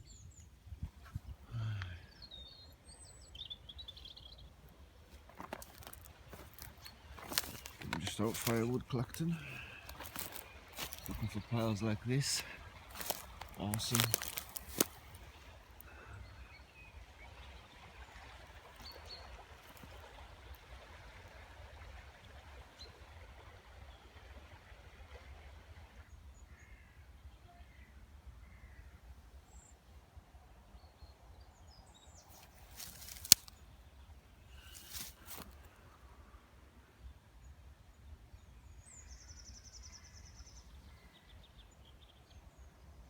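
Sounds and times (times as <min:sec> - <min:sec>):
faint bird calls: 0:05.7 - 0:16.7.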